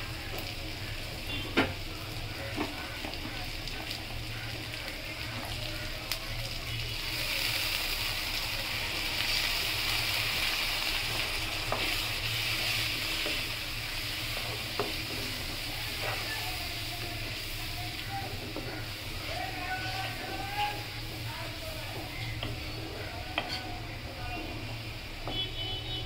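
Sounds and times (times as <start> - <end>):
onions frying in oil: 0.0 - 26.0.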